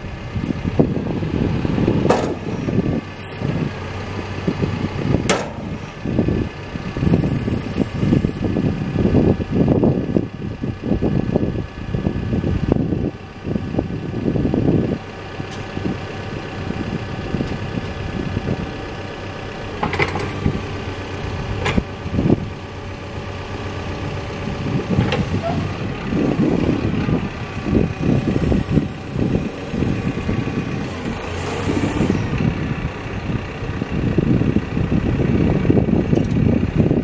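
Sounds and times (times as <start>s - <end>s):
diesel engine running: 0.0s - 37.0s
sharp knocks: 5.3s - 5.8s.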